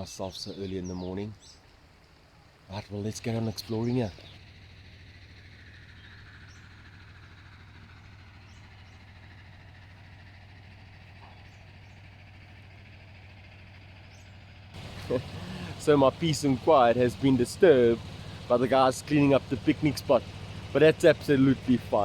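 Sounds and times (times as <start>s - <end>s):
distant tractor engine: 1.6s - 22.0s.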